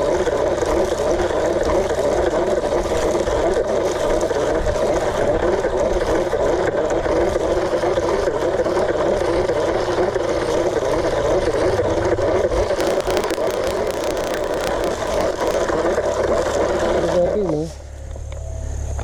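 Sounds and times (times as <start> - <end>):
faint ticks: 12.8 - 15.6.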